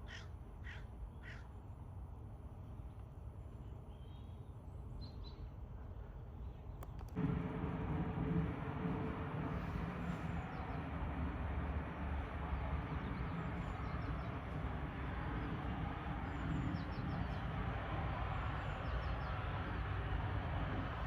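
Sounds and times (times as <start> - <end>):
jet engines rumbling: 7.0 - 21.0.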